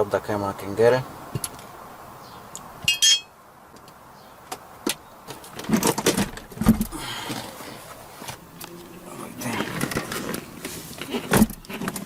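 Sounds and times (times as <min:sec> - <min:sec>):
tools clinking against metal: 0:02.9 - 0:03.3.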